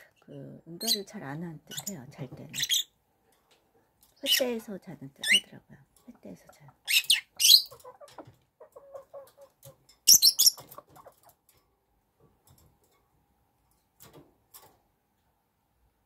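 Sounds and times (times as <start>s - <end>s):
chickens clucking softly: 6.1s - 11.5s.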